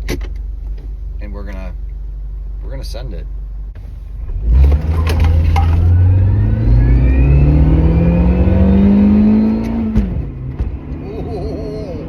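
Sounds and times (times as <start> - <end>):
car engine revving: 3.8 - 12.0.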